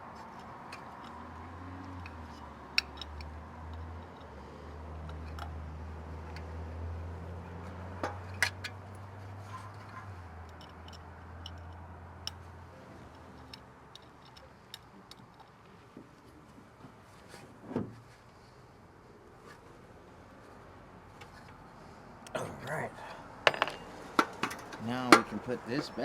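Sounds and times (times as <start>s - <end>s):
clicks and taps of tools: 5.0s - 5.6s, 23.5s - 26.0s.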